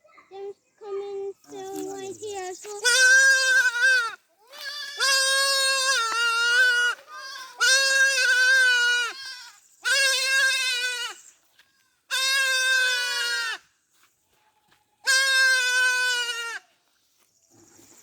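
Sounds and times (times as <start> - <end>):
goat bleating: 1.5 - 13.6, 15.0 - 16.7.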